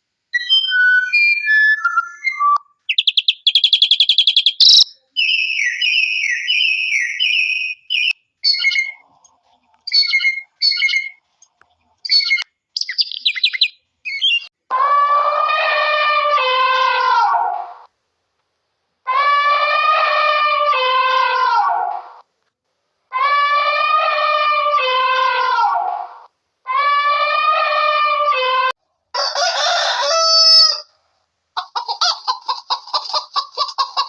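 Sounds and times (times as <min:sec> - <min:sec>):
cartoon bird chirps and whistles: 0:00.3 - 0:09.0, 0:09.9 - 0:11.2, 0:12.1 - 0:14.5.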